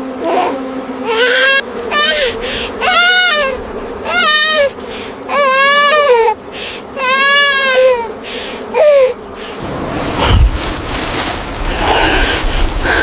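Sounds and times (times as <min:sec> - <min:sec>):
young child crying: 0:00.2 - 0:04.7, 0:05.3 - 0:09.2
low thud: 0:10.2 - 0:11.1.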